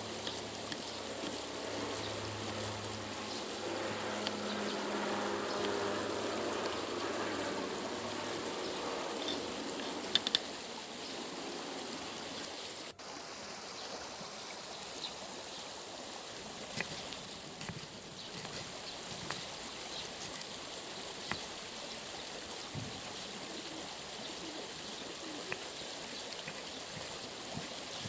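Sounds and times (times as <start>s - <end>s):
low hum: 0.0s - 12.4s
flowing water rushing: 0.0s - 28.0s
sharp clicks: 10.0s - 10.6s.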